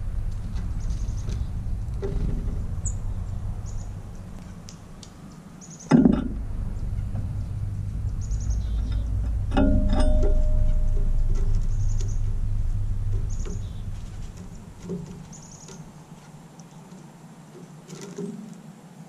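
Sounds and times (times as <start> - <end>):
steady low rumble: 0.0 - 16.6
small birds chirping: 0.0 - 18.8
sharp thump: 5.9 - 15.5.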